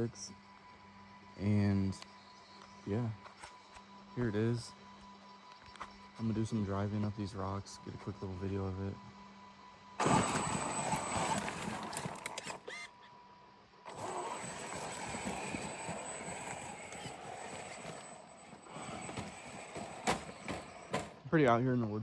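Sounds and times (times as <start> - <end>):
rc truck crunching over rocks: 10.0 - 12.9, 13.9 - 21.3.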